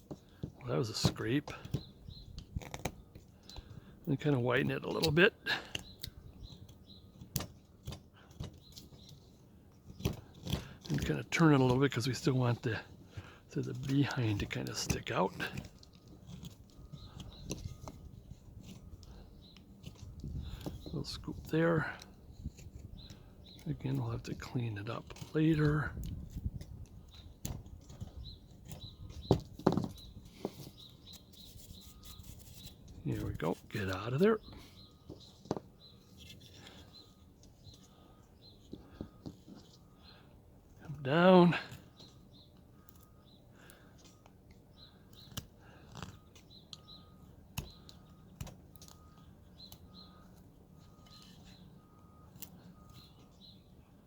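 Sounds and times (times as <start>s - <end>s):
carving tool scraping wood: 0.0s - 3.8s, 4.7s - 40.3s, 41.7s - 51.7s, 52.3s - 53.6s
carving tool cutting into wood: 14.3s - 20.9s
faint bird chirps: 27.0s - 54.0s.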